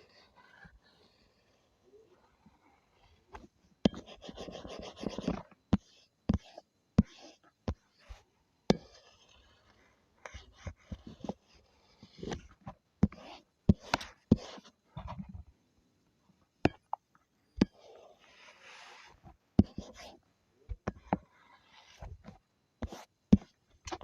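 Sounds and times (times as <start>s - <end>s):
soft scratchy drawing strokes: 0.0s - 24.0s
drawing tool tapping: 3.8s - 9.0s, 19.6s - 21.3s, 22.2s - 24.0s.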